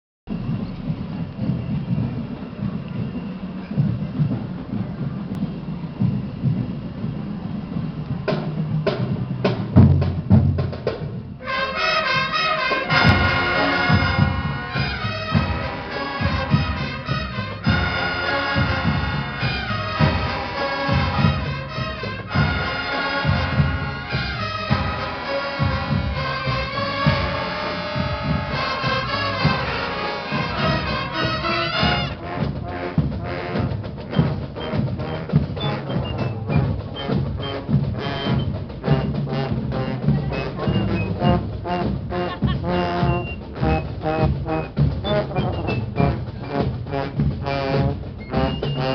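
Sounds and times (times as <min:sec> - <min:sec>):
marching band drums: 0:00.3 - 0:48.9
brass melody: 0:11.4 - 0:48.9.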